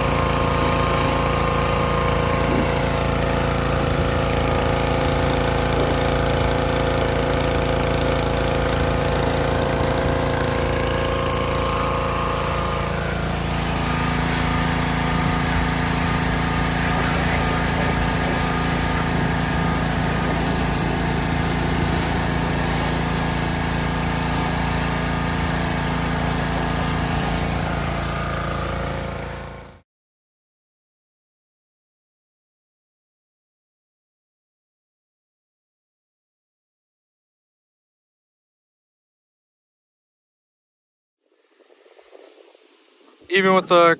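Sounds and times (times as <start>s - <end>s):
pressure washer droning: 0.0s - 29.8s, 42.4s - 43.9s.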